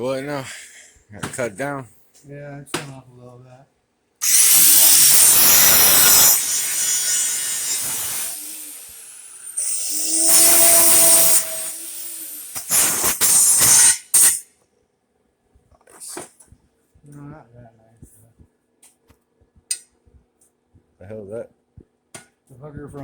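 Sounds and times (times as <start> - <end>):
power tool cutting metal: 4.2 - 14.4.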